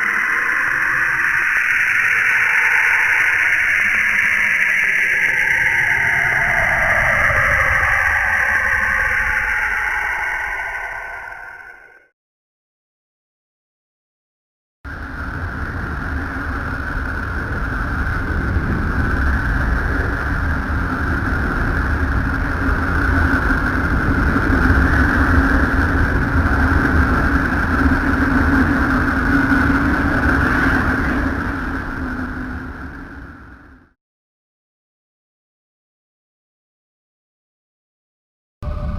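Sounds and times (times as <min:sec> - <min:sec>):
held high and low tones: 0:38.6 - 0:38.9.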